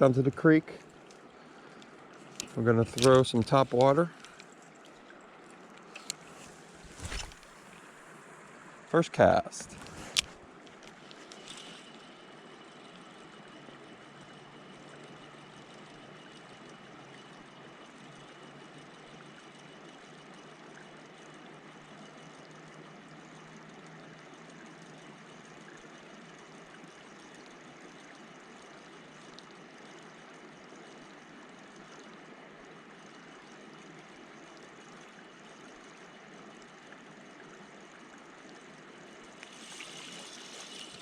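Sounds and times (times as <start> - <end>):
creek water rushing: 5.3 - 11.4, 38.9 - 41.0.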